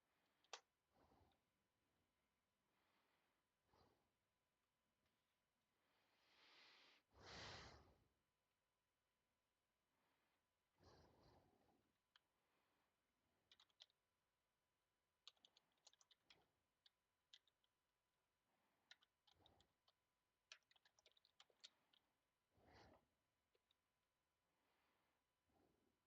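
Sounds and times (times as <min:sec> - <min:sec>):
soft breaths: 0:00.0 - 0:04.5, 0:05.1 - 0:08.2, 0:09.7 - 0:14.0, 0:15.4 - 0:26.0
faint typing on a keyboard: 0:13.3 - 0:14.2, 0:15.0 - 0:24.0.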